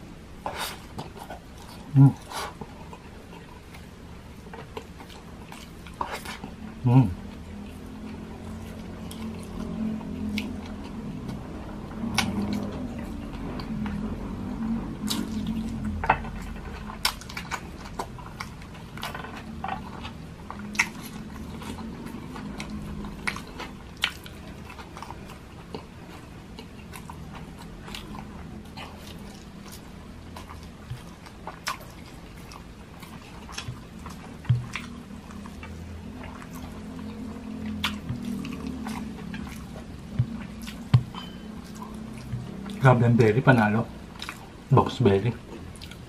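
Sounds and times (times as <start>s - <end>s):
man chewing food: 0.0s - 46.0s
wet mouth sounds: 26.5s - 42.8s.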